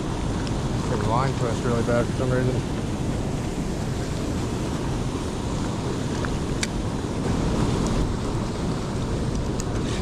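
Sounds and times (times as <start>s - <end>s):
creek water rushing: 0.0s - 10.0s
wind on microphone: 0.0s - 10.0s.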